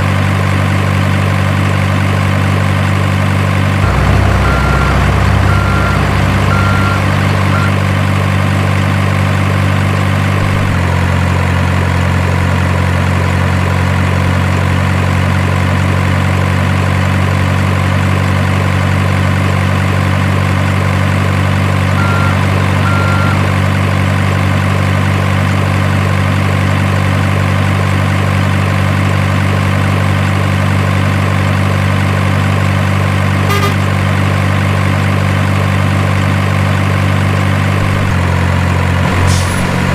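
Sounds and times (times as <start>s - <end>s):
simulated diesel engine idling: 0.1s - 39.9s
short high beeps: 3.8s - 7.8s, 33.5s - 33.9s.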